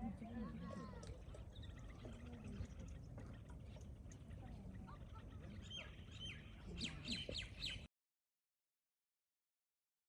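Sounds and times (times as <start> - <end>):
faint bird chirps: 0.2 - 7.9.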